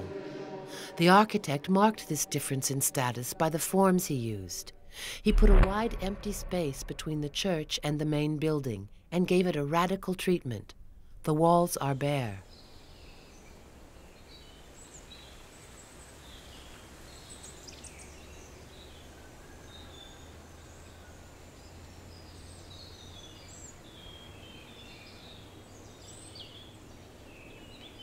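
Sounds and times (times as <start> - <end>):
steady low hum: 4.2 - 12.9.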